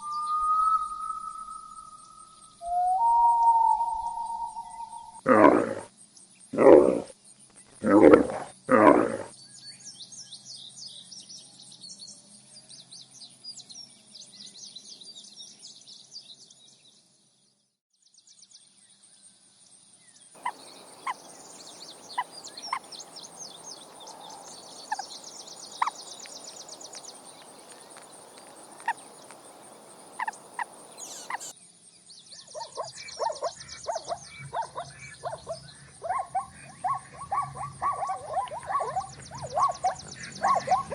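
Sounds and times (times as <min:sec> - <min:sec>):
high-pitched chirping: 0:00.0 - 0:05.2, 0:20.4 - 0:31.5
quick repeated animal calls: 0:20.4 - 0:31.5.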